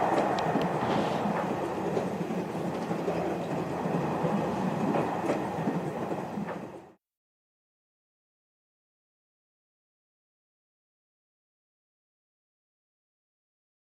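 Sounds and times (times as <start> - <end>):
train wheels clicking: 0.0 - 6.9
train rumbling on rails: 0.0 - 7.0.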